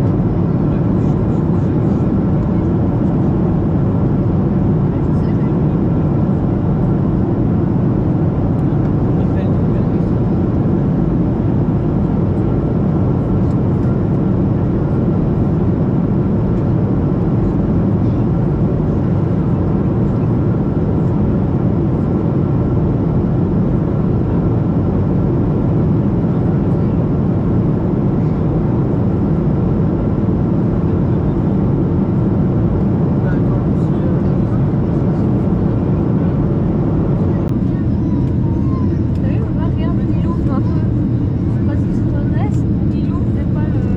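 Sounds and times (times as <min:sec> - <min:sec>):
airplane cabin engine rush: 0:00.0 - 0:43.9.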